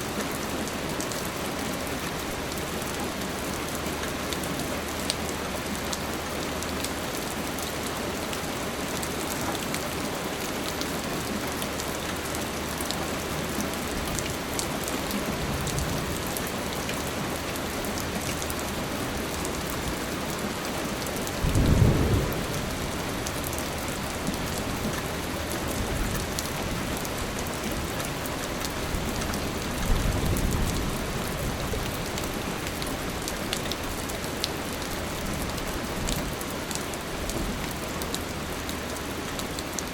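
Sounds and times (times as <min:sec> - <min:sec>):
steady rain falling: 0:00.0 - 0:39.9
thunder rumbles: 0:21.4 - 0:24.6.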